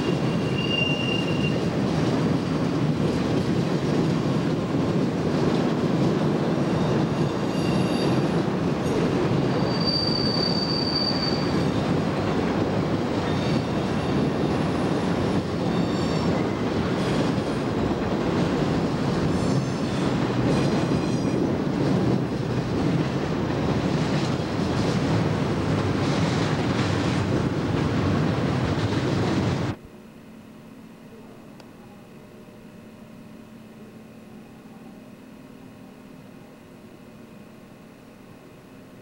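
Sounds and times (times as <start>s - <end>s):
train wheel squeals: 0.0s - 1.8s, 6.6s - 12.0s, 13.1s - 17.7s, 19.2s - 21.6s
train wheels rumbling on rail: 0.0s - 29.8s.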